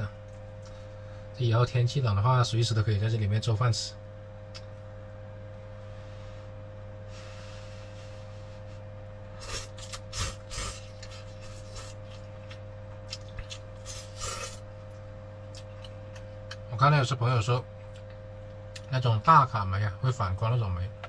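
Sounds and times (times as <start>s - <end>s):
steady low hum: 0.0s - 21.0s
person slurping noodles: 9.4s - 12.3s, 13.8s - 14.6s.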